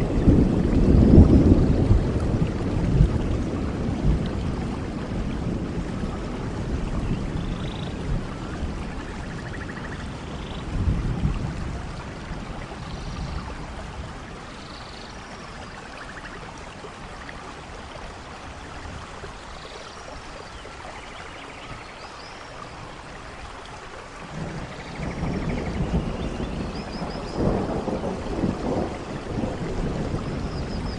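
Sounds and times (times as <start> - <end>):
low rumble of thunder: 0.0 - 17.4, 24.2 - 30.9
steady rain falling: 0.0 - 30.9.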